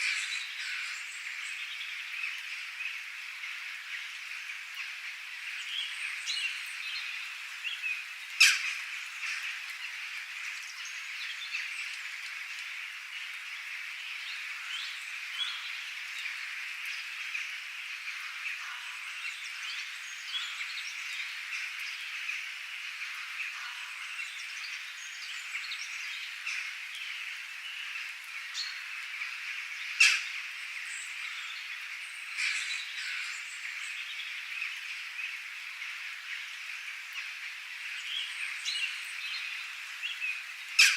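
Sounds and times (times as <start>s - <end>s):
chorus of chirping calls: 40.3s - 40.9s.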